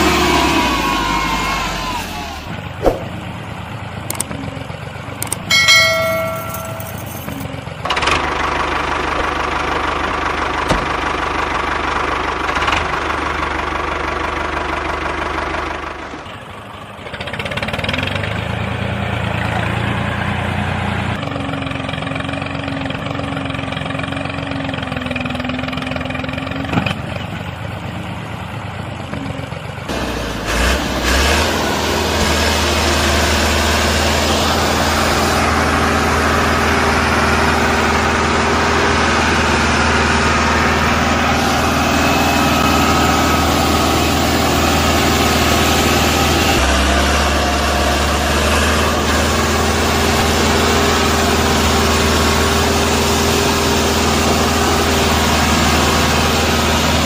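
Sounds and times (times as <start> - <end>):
short pitched tone: 5.5 - 7.4.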